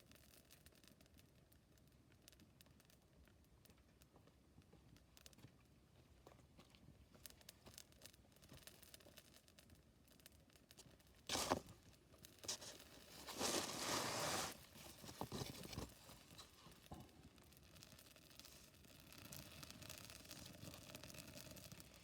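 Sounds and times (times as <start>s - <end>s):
rustling or scraping: 11.3s - 11.7s, 12.4s - 16.7s.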